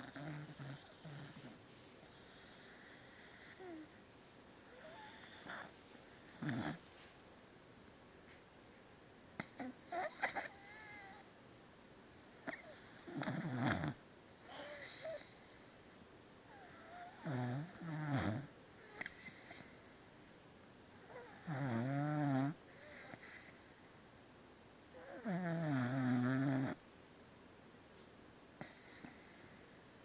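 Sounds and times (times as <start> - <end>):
dog snoring: 0.0 - 6.8, 9.4 - 11.2, 12.1 - 20.0, 20.8 - 23.8, 24.9 - 26.8, 28.6 - 30.0.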